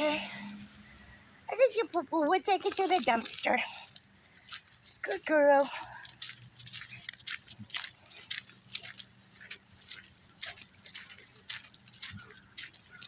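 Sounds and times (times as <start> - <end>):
footsteps scuffing: 6.2 - 13.0.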